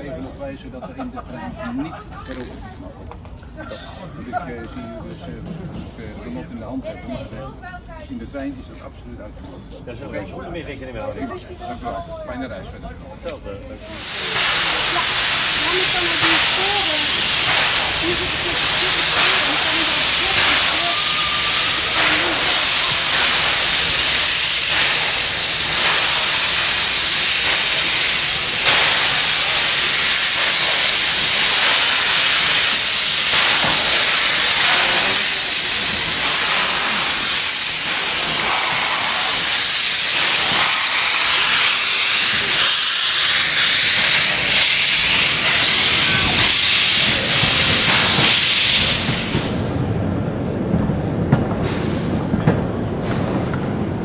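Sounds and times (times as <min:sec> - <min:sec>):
hiss of escaping steam: 0:13.8 - 0:49.8.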